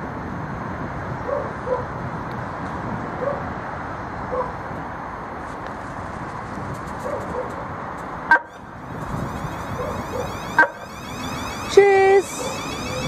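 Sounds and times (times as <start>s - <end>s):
train humming: 8.3s - 13.0s.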